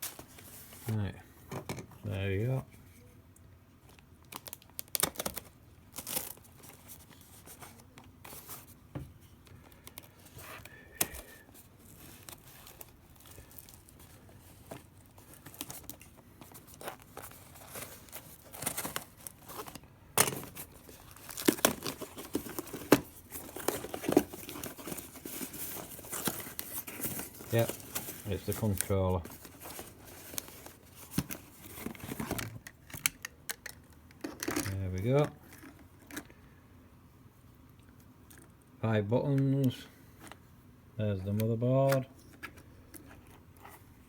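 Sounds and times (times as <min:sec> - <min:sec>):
packaging tearing and crinkling: 0:04.2 - 0:07.3, 0:11.8 - 0:33.2.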